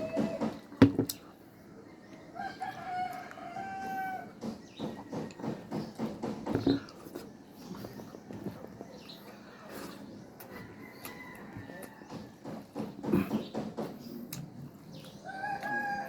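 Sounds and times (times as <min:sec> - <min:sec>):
rooster crowing: 0:02.4 - 0:04.3, 0:15.3 - 0:16.0.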